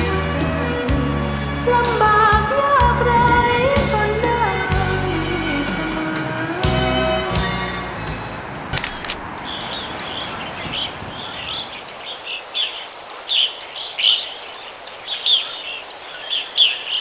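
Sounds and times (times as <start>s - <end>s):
birds chirping: 8.8s - 17.0s.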